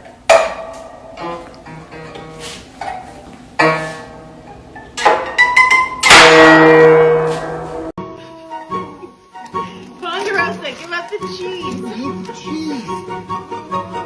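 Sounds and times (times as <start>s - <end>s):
guitar plucked notes: 0.3s - 2.4s.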